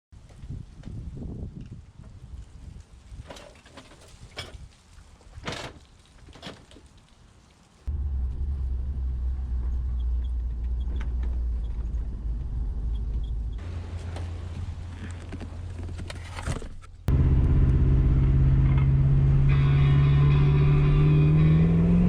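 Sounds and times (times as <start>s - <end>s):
pickup truck engine rumbling: 7.9s - 22.0s.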